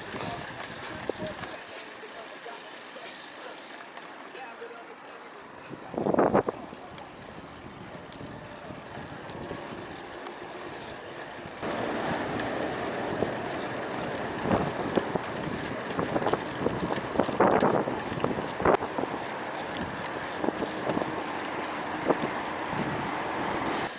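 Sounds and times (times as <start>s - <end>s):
wind buffeting microphone: 5.7s - 23.7s.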